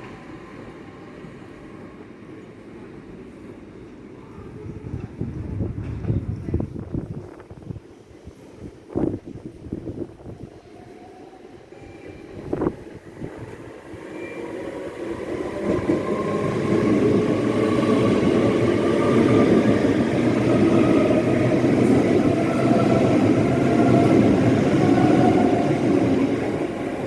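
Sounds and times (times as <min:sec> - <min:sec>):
train wheels rumbling on rails: 0:03.2 - 0:10.5, 0:12.0 - 0:27.0.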